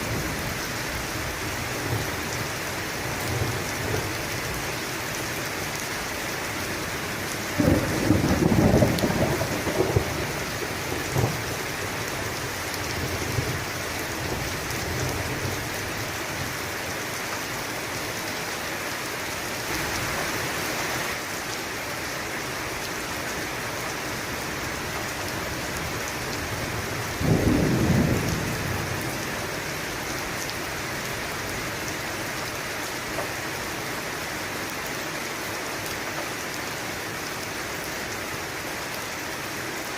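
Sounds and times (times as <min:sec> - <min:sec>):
heavy rain: 0:00.0 - 0:39.9
thunder claps: 0:07.6 - 0:11.4.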